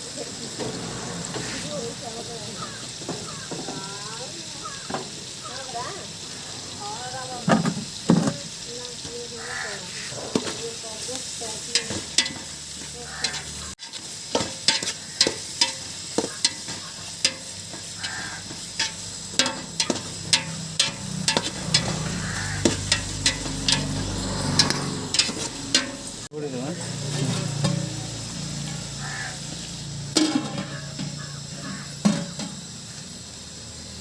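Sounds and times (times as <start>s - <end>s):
food sizzling in a pan: 0.0s - 34.0s
utensil scraping and clinking pan: 7.4s - 9.1s, 9.7s - 26.3s, 27.1s - 32.8s.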